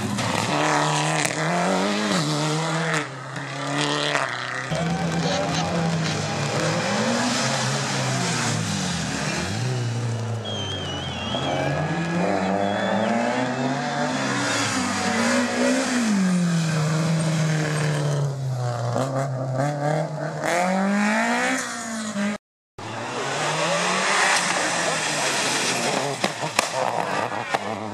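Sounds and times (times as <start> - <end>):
rally car engine revving: 0.0 - 27.9
tyre squeals: 10.4 - 15.1.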